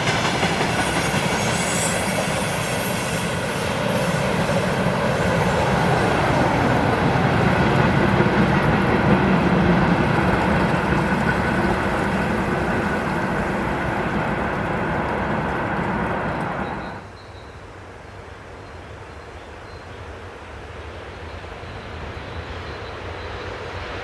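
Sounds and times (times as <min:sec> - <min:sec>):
freight train rumbling on rails: 0:00.0 - 0:24.0.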